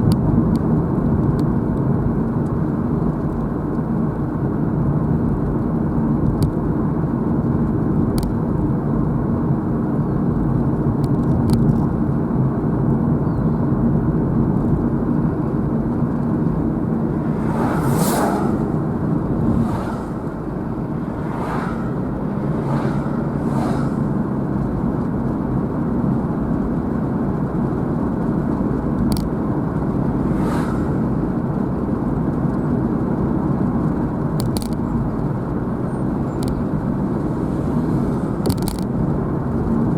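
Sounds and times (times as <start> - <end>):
car road and engine noise: 0.0 - 39.9
vehicles whooshing past: 16.0 - 25.7, 29.6 - 32.4, 35.7 - 39.5.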